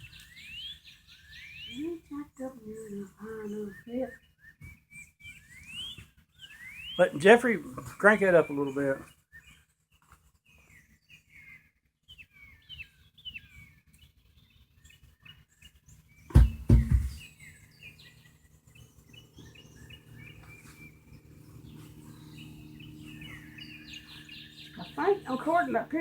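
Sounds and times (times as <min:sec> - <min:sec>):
birds chirping: 0:00.0 - 0:09.5, 0:16.2 - 0:26.0
loud knocks: 0:16.3 - 0:17.2
steady low hum: 0:19.1 - 0:26.0.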